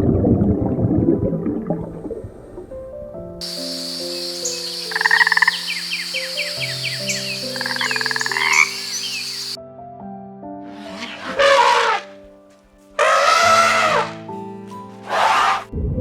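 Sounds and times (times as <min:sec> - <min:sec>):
frogs croaking trills: 0:03.4 - 0:09.6, 0:13.0 - 0:14.2.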